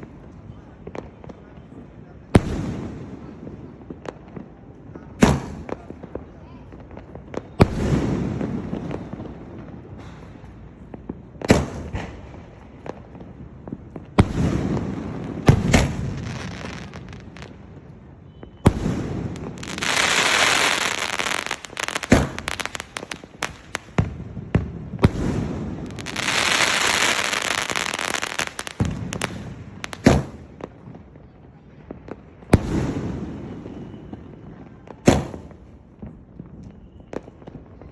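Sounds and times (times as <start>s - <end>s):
dense firework crackling: 0.0s - 31.2s, 32.1s - 37.9s
firework shells launching and bursting: 18.7s - 24.0s, 25.0s - 30.4s.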